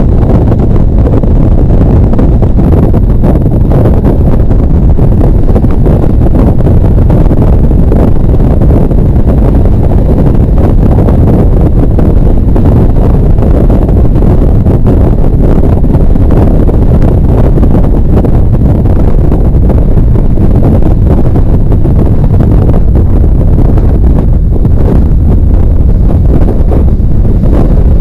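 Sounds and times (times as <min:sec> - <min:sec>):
motorcycle engine running: 0:00.0 - 0:28.0
wind buffeting microphone: 0:00.0 - 0:28.0.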